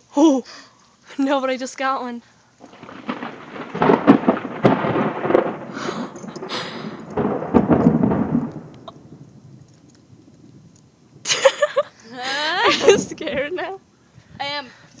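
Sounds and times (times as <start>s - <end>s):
thunder rumbling and cracking: 2.6s - 13.8s.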